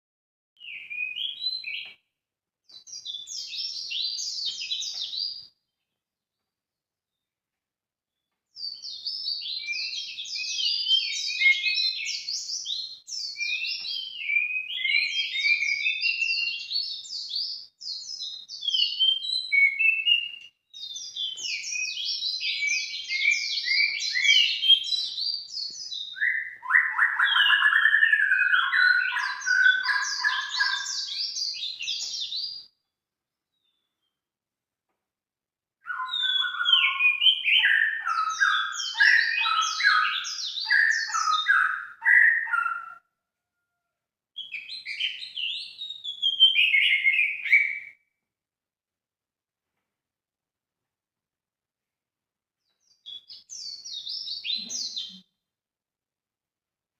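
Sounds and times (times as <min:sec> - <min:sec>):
bird song twittering: 0:00.6 - 0:02.1, 0:02.7 - 0:06.4, 0:08.1 - 0:32.7, 0:35.8 - 0:43.0, 0:44.4 - 0:48.0, 0:52.6 - 0:55.2.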